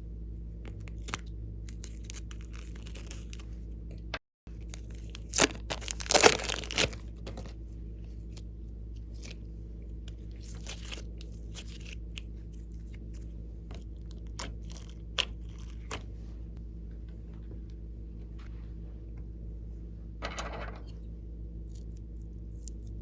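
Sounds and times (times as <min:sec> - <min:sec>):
steady low hum: 0:00.0 - 0:23.0
slime crunching and tearing: 0:00.7 - 0:03.5, 0:04.6 - 0:07.5, 0:10.3 - 0:12.9, 0:14.1 - 0:16.0.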